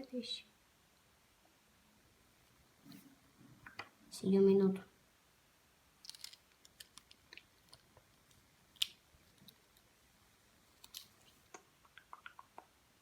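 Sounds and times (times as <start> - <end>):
plastic bricks clicking together: 6.0 - 7.9.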